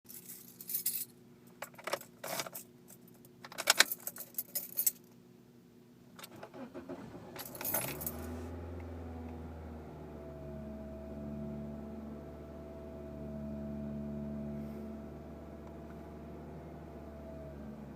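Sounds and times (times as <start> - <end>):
car keys jangling in ignition: 0.1 - 5.1, 6.2 - 8.4
car starter cranking: 6.2 - 8.4.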